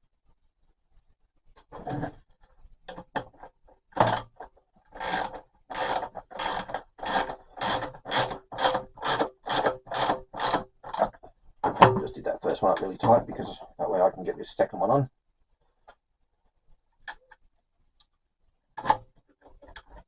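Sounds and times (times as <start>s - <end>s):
hand tool rasping on nut: 5.0s - 11.1s.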